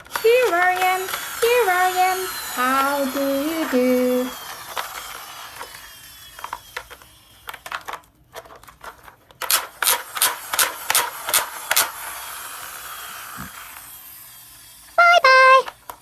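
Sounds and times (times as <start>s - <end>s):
quick regular loud clicks: 8.8s - 12.2s.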